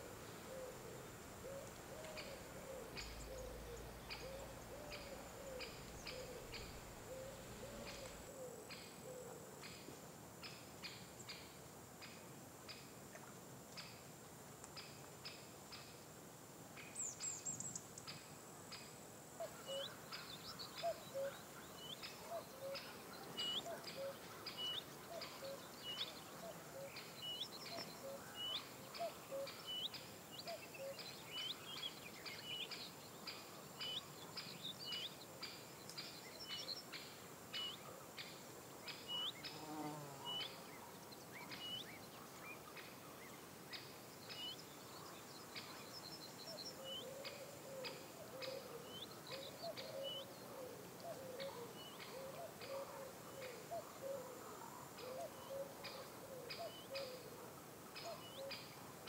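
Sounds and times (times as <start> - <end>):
lower wavering bird calls: 0.0 - 9.4, 19.4 - 38.3, 40.2 - 57.4, 58.0 - 58.8
bird chirping: 0.0 - 9.8, 19.4 - 54.3, 55.0 - 57.3, 58.0 - 58.8.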